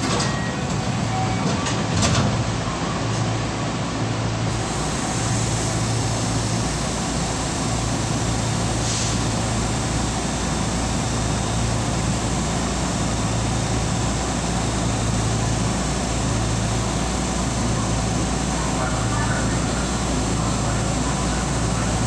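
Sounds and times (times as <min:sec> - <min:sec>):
train running noise: 0:00.0 - 0:22.0
short hiss: 0:08.8 - 0:09.2.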